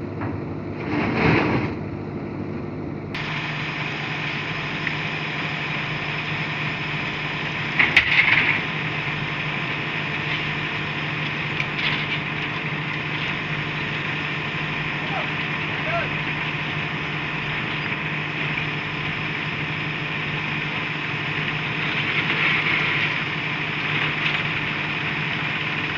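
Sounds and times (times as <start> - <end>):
mechanical hum: 0.0 - 25.9
loud clatter: 7.8 - 8.7.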